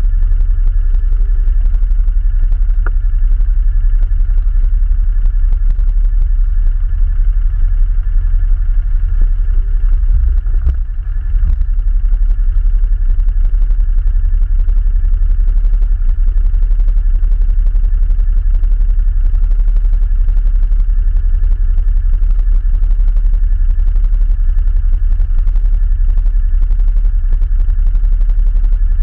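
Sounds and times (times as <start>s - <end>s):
atv engine rumbling: 0.0s - 15.0s.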